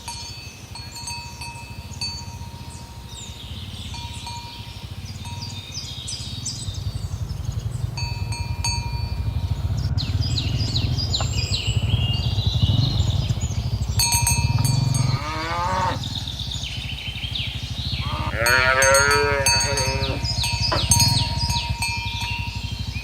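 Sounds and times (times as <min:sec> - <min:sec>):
high falling chirps: 0:00.0 - 0:23.0
low pulsing rumble: 0:01.3 - 0:23.0
cows mooing: 0:13.9 - 0:16.3, 0:17.9 - 0:22.8.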